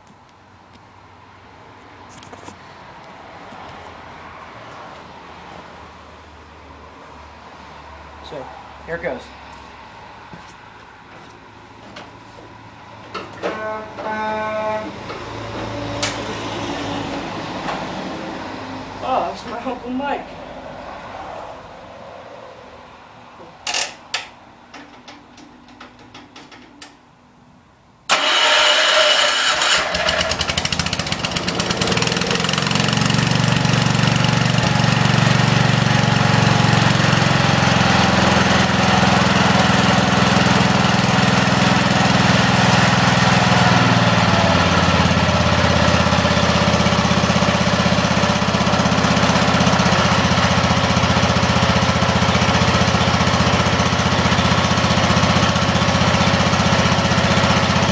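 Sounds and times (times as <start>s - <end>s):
tractor engine cranking and running: 13.0s - 18.1s, 23.6s - 27.3s, 28.1s - 57.9s.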